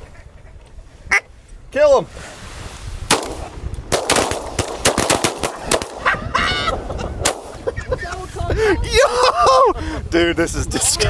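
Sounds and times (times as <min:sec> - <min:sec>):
shotgun blasts: 0:03.1 - 0:06.2, 0:07.2 - 0:07.7.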